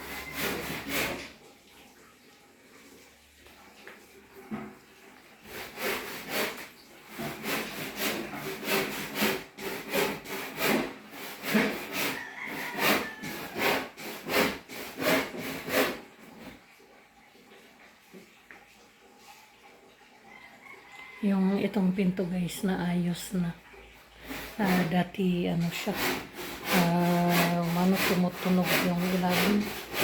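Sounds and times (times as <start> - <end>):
hand saw cutting wood: 0.0 - 1.5, 5.4 - 16.6, 24.2 - 30.0.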